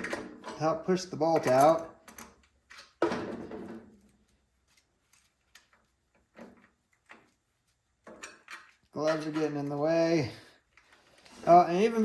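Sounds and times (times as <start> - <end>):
tools and parts clicking: 1.3 - 3.0, 8.0 - 9.8.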